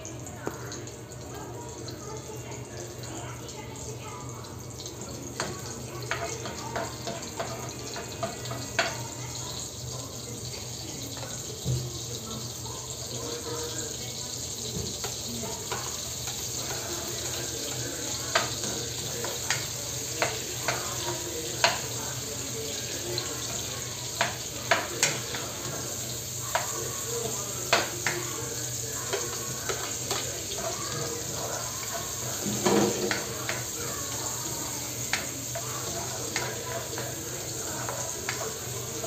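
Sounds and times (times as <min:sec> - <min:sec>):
onions sizzling in a wok: 0:00.0 - 0:39.0
spatula scraping a pan: 0:05.3 - 0:10.1, 0:14.4 - 0:39.0.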